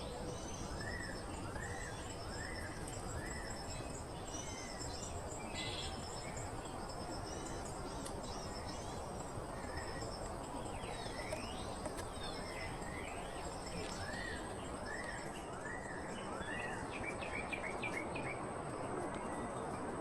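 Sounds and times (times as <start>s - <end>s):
high insect drone: 0.0s - 15.4s
insects chirping: 0.0s - 16.6s.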